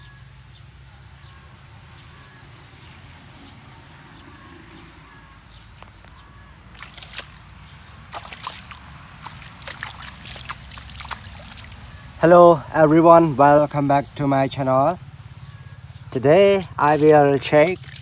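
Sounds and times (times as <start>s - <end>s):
water splashing and dripping: 5.8s - 12.7s, 16.5s - 18.0s.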